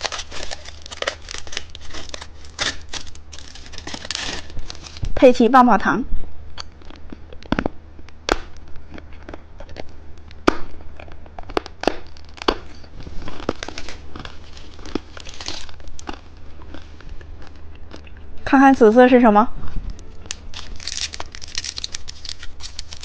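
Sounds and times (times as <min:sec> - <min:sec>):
plastic wrapper crinkling: 0:00.0 - 0:05.2, 0:11.5 - 0:16.1, 0:20.0 - 0:23.0.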